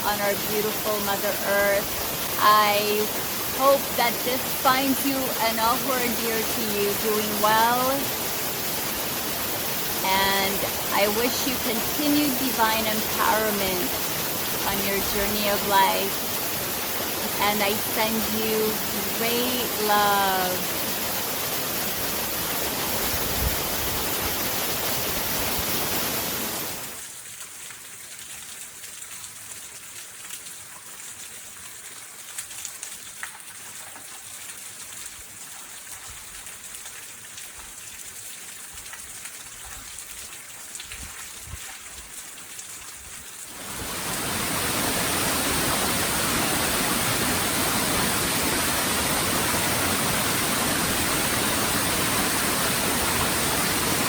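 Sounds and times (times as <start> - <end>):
waterfall rushing: 0.0 - 27.0, 43.5 - 54.0.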